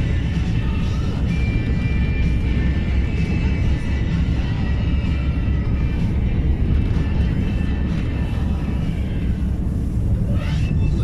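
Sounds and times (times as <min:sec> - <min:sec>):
faint music playing: 0:00.0 - 0:11.0
truck engine and tyres on gravel: 0:00.0 - 0:11.0.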